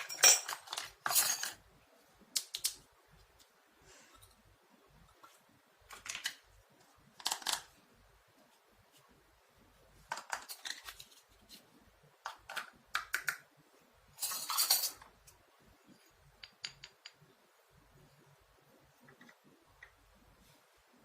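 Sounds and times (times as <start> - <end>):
plastic toy pieces clicking: 2.3 - 2.8, 7.2 - 7.7.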